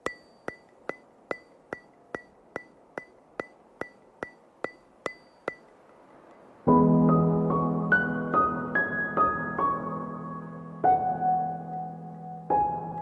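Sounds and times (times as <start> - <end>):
ticking clicks with high ring: 0.0 - 6.5.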